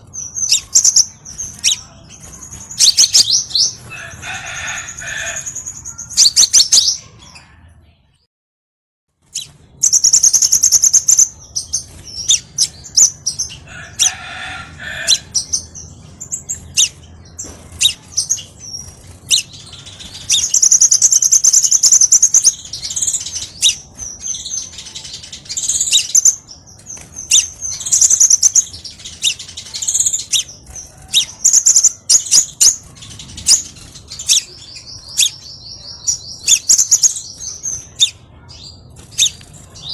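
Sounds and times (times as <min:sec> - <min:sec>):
bird chirps and trills: 0:00.0 - 0:08.0, 0:09.2 - 0:39.9.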